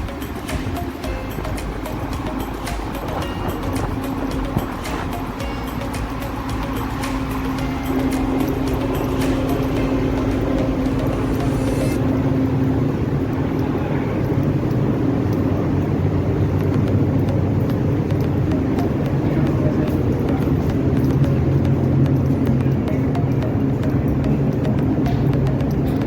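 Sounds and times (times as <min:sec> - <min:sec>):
engine running: 0:00.0 - 0:26.0.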